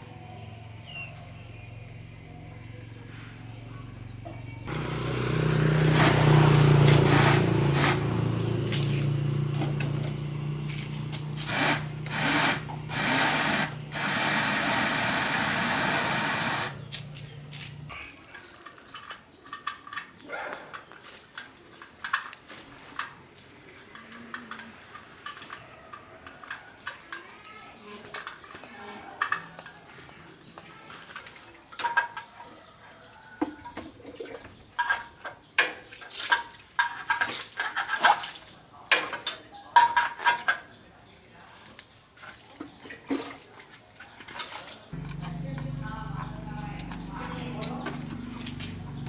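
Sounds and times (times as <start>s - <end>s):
electric motor humming: 4.7s - 17.9s, 45.0s - 49.0s
spray gun hissing: 5.9s - 6.3s, 7.0s - 8.0s, 11.4s - 16.9s.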